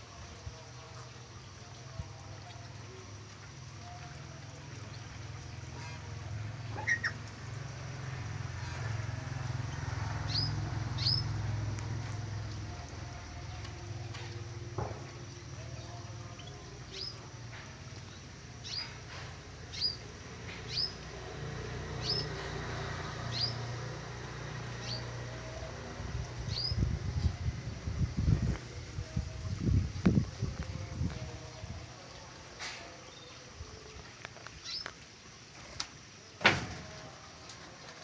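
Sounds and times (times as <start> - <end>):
bird chirping: 6.5 - 7.3, 10.2 - 11.4, 15.5 - 21.0.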